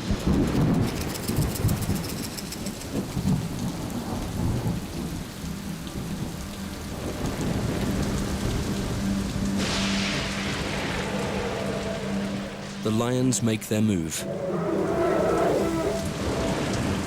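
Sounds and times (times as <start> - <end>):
steady rain: 0.0 - 17.0
rolling thunder: 7.0 - 12.9, 14.1 - 17.0
steady low tone: 9.2 - 17.0.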